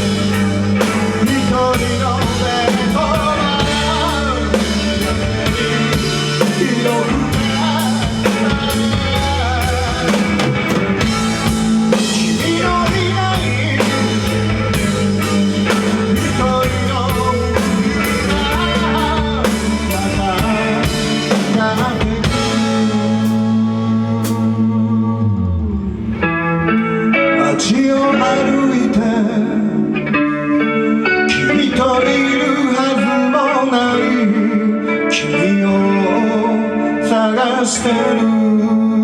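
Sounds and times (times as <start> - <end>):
drum kit beat: 0.0 - 24.6
rock band playing live: 0.0 - 39.0.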